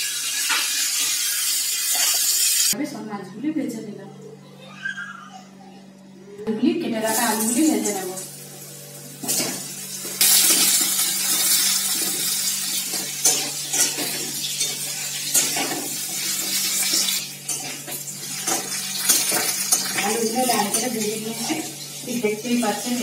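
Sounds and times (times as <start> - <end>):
potatoes sizzling in hot oil: 0.0 - 2.8, 9.3 - 23.0.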